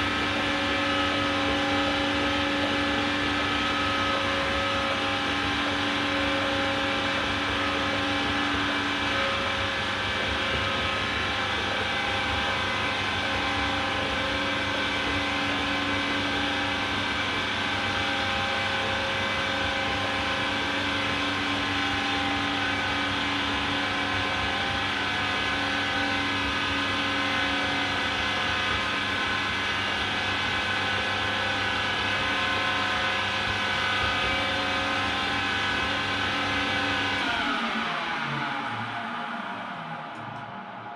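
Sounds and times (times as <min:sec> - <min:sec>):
washer-dryer motor hum and whine: 0:00.0 - 0:40.9.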